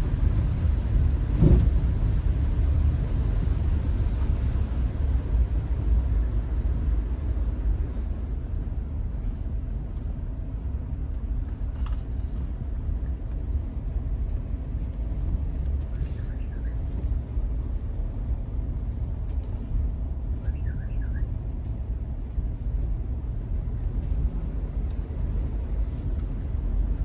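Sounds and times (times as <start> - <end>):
car rumble while driving: 0.0 - 27.0.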